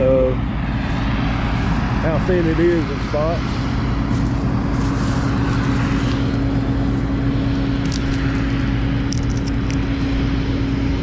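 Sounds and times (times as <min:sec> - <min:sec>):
farm machinery engine drone: 0:00.0 - 0:11.0.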